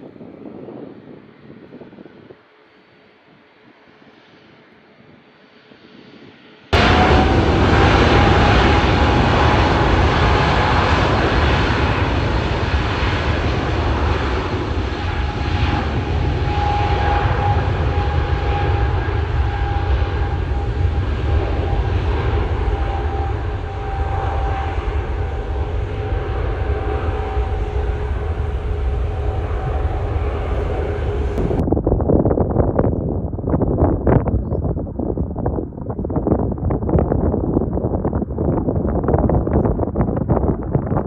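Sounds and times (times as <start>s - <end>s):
jet engines roaring and whining: 0.0s - 31.7s.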